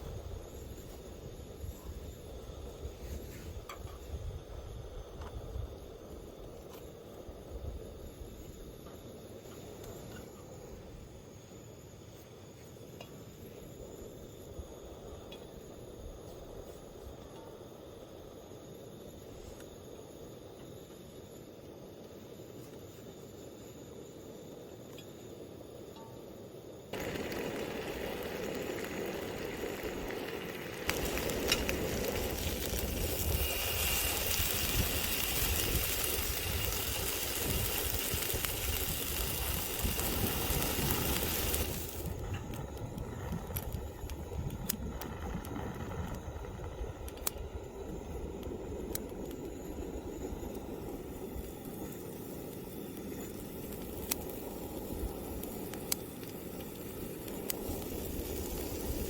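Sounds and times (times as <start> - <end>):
food sizzling in a pan: 26.9 - 42.2, 50.2 - 59.0
oil popping and spattering: 26.9 - 42.6.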